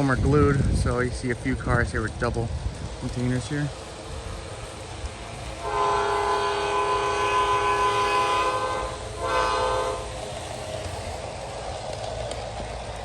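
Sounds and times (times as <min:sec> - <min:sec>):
steady low rumble: 0:00.0 - 0:13.0
multi-note locomotive horn: 0:04.6 - 0:10.9.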